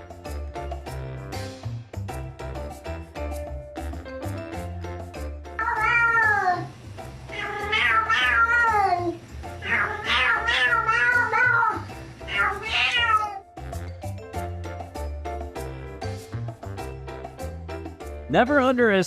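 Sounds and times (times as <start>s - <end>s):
background music: 0.0s - 19.0s
cat meowing: 5.6s - 6.7s, 7.3s - 13.5s.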